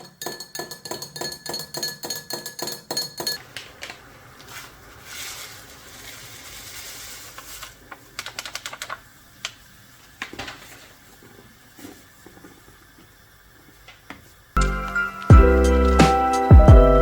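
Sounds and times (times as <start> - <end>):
soft rushing hiss: 3.6 - 15.3.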